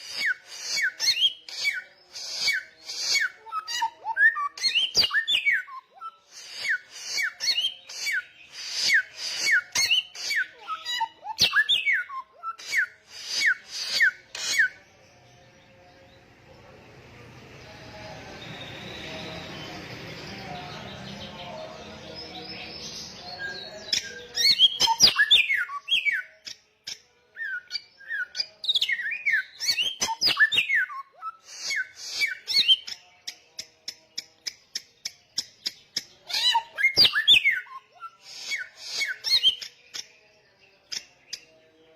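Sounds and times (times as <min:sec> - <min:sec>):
songbird singing: 0:13.4 - 0:41.9.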